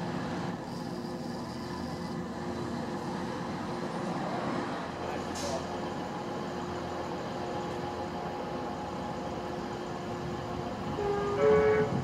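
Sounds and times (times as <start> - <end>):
train rumble: 0.0 - 12.0
two-tone train horn: 10.8 - 12.0.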